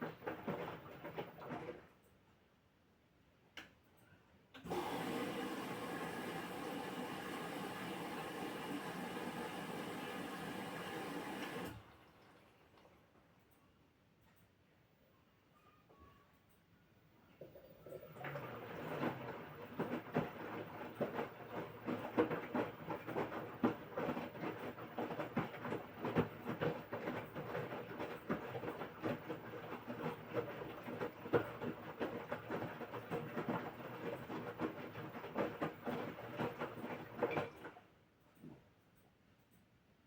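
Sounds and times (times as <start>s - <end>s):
washing machine drum tumbling: 18.0s - 37.8s.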